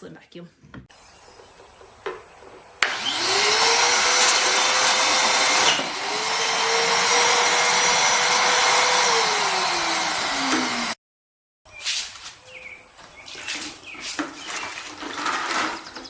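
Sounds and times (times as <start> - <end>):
shop vacuum motor whine: 2.8 - 11.0.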